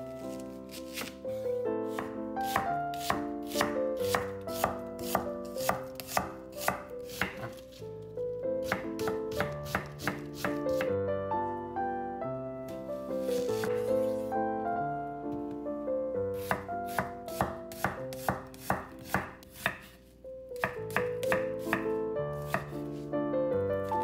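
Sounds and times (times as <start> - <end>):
soft piano music: 0.0 - 24.0
knife chopping on cutting board: 0.7 - 1.2, 1.9 - 7.7, 8.6 - 10.9, 13.3 - 13.9, 16.4 - 20.0, 20.6 - 22.8.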